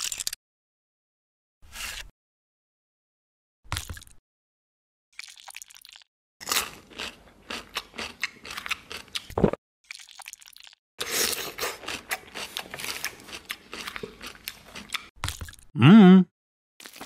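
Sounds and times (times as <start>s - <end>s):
crunchy chewing of fried food: 5.2s - 15.7s.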